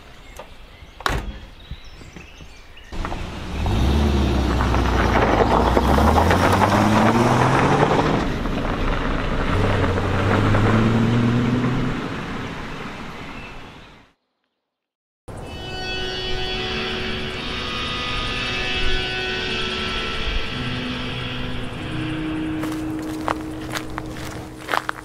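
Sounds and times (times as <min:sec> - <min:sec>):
car engine starting and revving: 0:03.0 - 0:13.3.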